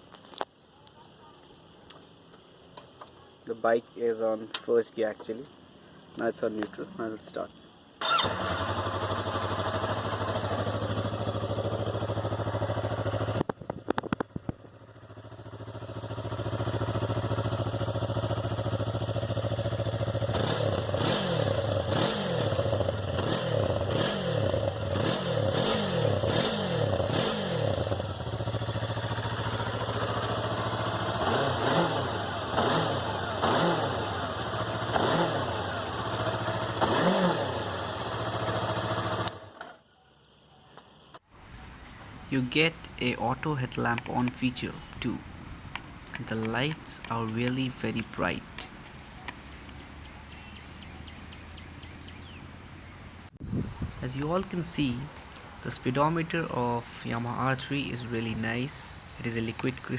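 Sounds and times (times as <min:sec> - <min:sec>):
motorcycle engine idling and revving: 0:08.0 - 0:59.9.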